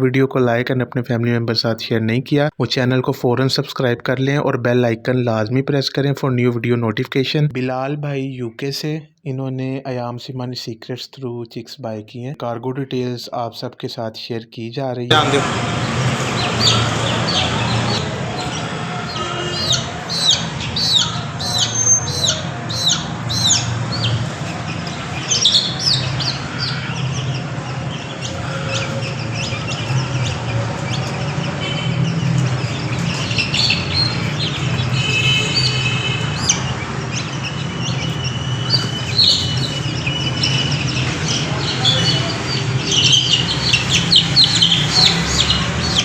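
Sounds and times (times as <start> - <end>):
chicks peeping: 15.1 - 46.0.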